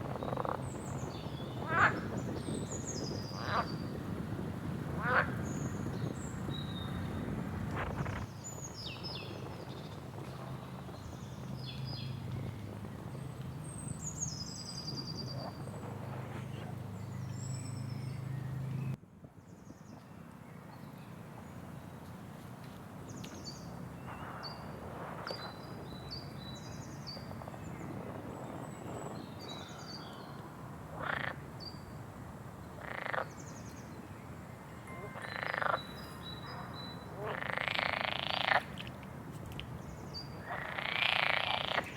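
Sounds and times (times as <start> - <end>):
frogs croaking: 30.9 - 31.5, 32.8 - 33.4, 34.9 - 38.9, 40.4 - 41.9.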